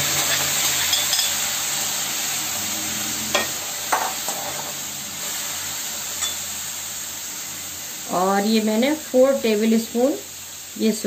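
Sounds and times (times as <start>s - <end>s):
food sizzling in a pan: 0.0s - 11.0s
metal spatula clinking on pan: 0.2s - 1.4s, 6.2s - 6.4s.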